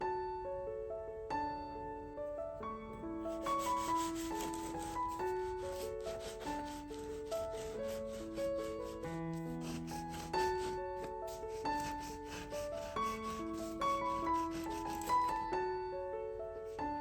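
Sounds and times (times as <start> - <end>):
gentle piano music: 0.0 - 17.0
rapid scraping strokes: 3.3 - 15.4.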